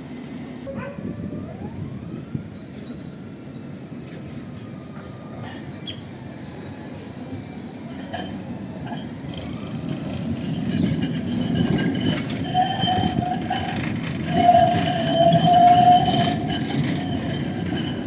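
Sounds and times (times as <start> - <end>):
tram rumbling on rails: 0.0 - 18.0
wheels squealing on rails: 1.2 - 18.0
metallic clinking and rattling: 7.9 - 18.0.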